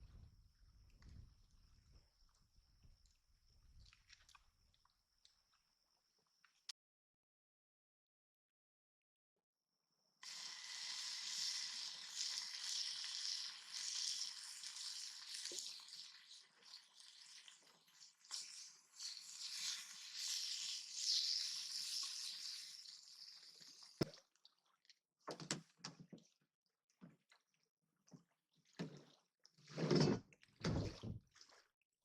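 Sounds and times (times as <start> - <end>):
fish sizzling in a pan: 10.2 - 24.0.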